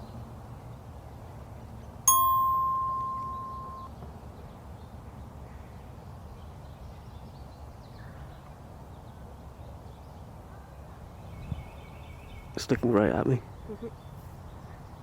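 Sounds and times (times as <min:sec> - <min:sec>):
faint bird chirps: 0:02.1 - 0:03.9.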